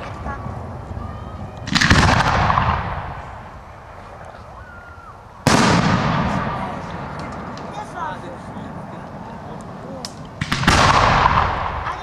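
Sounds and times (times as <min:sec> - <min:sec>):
fireworks crackling bangs: 0:00.0 - 0:04.6, 0:05.3 - 0:12.0
loud firework bang: 0:01.7 - 0:03.4, 0:05.4 - 0:07.8, 0:10.4 - 0:12.0.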